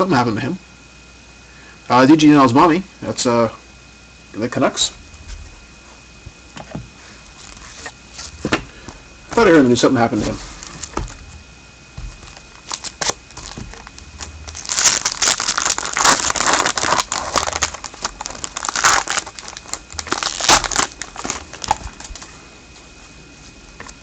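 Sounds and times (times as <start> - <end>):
foil wrapper crinkling: 7.1 - 11.3, 12.0 - 22.4.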